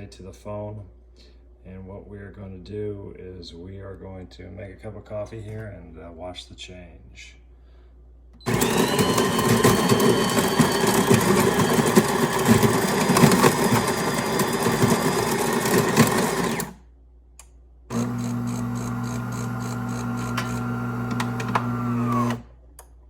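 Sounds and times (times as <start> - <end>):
grinder grinding coffee beans: 8.5 - 16.8, 17.9 - 22.4.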